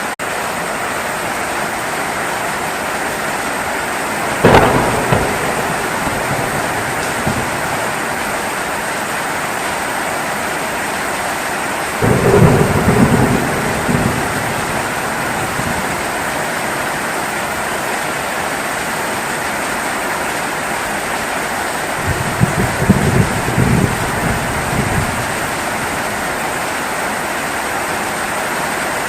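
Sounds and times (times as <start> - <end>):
heavy rain: 0.0 - 29.0
low rumble of thunder: 4.2 - 8.8, 12.0 - 16.5, 22.0 - 26.3.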